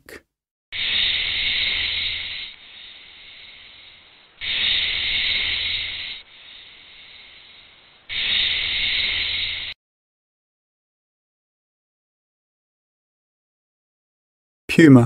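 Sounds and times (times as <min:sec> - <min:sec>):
snake hissing: 0:00.7 - 0:09.8.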